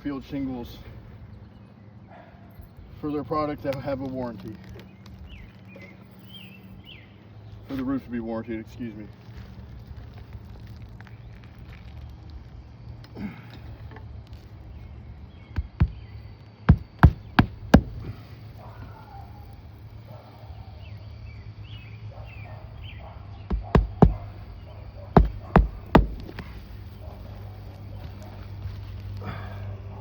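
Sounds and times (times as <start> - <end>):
tool knocking on roof shingles: 15.5 - 16.1, 16.7 - 18.2, 23.5 - 24.3, 25.2 - 26.6.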